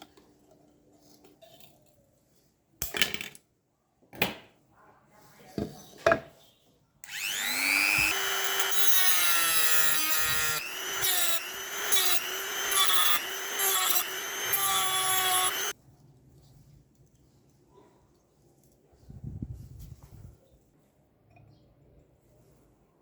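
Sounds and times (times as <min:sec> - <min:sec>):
electric power tool whining: 0:07.0 - 0:15.8.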